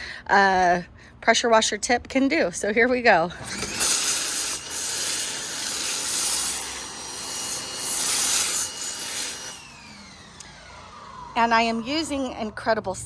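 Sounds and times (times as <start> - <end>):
pressure washer spray hissing: 3.5 - 9.6.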